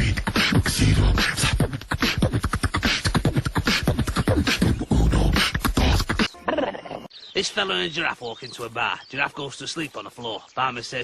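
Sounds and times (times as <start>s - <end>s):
person beatboxing: 0.0s - 6.3s.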